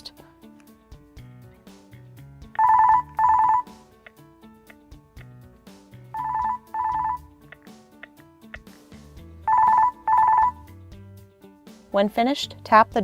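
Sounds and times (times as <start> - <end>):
soft background music: 0.0 - 13.0
speakerphone trilling ringtone: 2.6 - 3.8, 6.1 - 7.3, 9.5 - 10.7.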